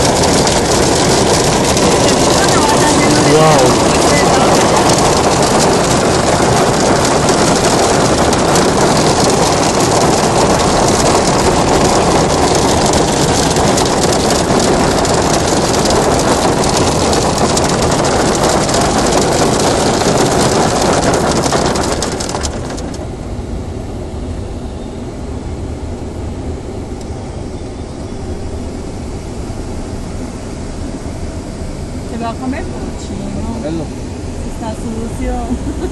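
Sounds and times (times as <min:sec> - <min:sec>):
hail pelting down: 0:00.0 - 0:23.0.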